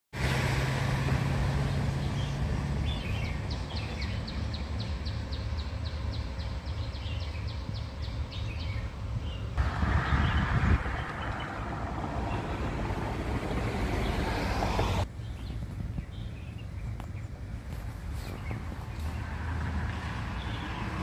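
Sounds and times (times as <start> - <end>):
steady low rumble: 6.1 - 19.4.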